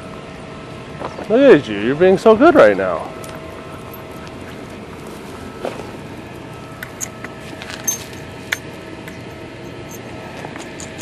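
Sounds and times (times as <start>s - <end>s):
background hum: 0.0s - 11.0s
metallic clicks and jingles: 6.8s - 11.0s.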